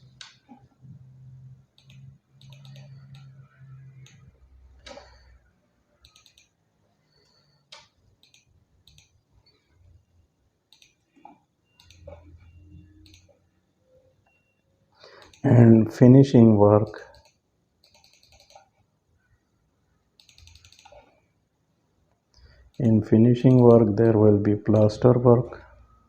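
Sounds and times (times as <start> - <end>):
mouse and keyboard clicks: 1.8 - 3.4, 6.0 - 6.6, 7.4 - 9.2, 10.7 - 12.3, 13.0 - 13.4, 17.1 - 18.8, 20.2 - 21.2.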